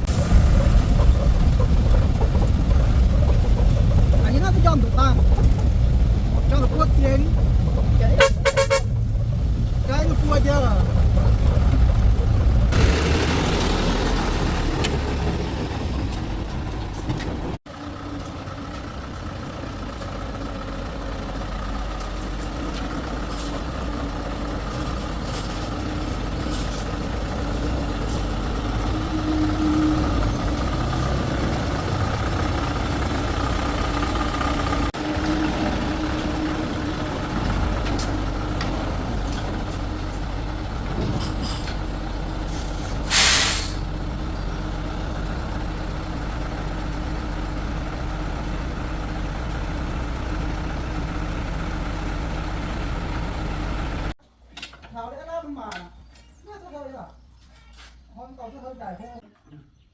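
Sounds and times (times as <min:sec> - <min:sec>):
heavy vehicle engine running: 0:00.0 - 0:54.2
air hissing: 0:43.0 - 0:43.9.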